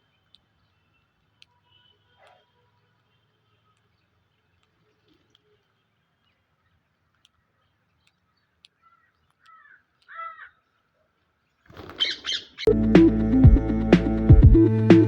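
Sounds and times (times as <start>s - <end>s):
faint clicks: 0.0s - 6.0s, 6.8s - 10.2s
bird harsh calls: 8.7s - 10.7s, 11.7s - 12.7s.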